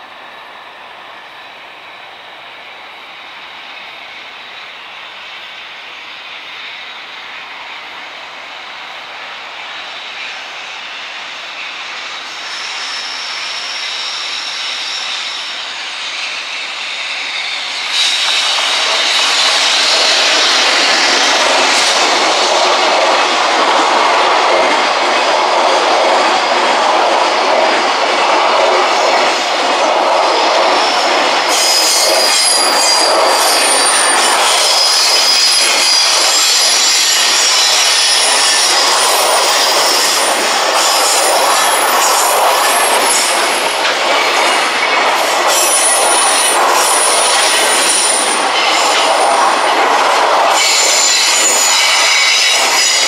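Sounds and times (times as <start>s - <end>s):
train wheels rumbling on rails: 0.0s - 53.0s
wheel squeal: 12.2s - 21.9s, 30.9s - 44.9s.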